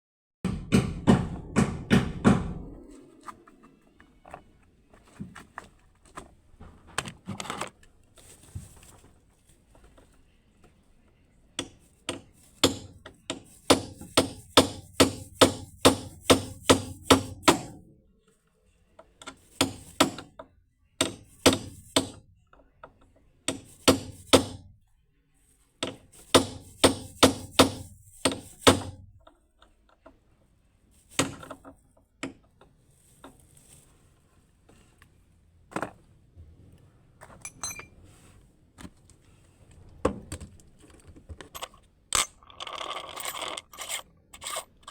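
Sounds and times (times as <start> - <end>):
hammer blows: 0.4 - 3.5.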